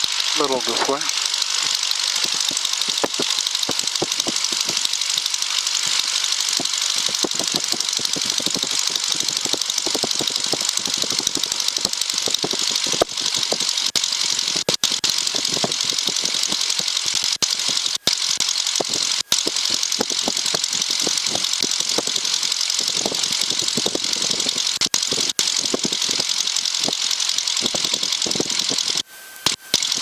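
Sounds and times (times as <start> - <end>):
propeller aircraft engine idling: 0.0 - 30.0.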